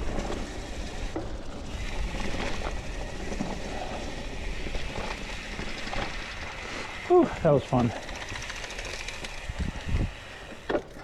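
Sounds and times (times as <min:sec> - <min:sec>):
bike tyre noise on dirt: 0:00.0 - 0:11.0
wind rumble on microphone: 0:09.4 - 0:10.2.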